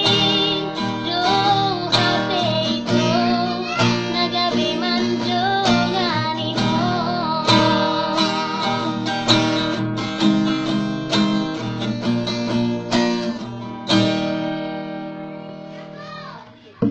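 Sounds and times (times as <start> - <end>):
woman singing: 0.0 - 9.3
acoustic guitar strumming: 0.0 - 16.9.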